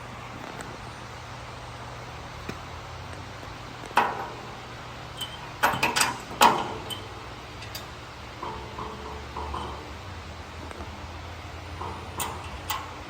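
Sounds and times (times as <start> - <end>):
metal clanks and clinks: 5.2 - 10.2, 11.6 - 13.0.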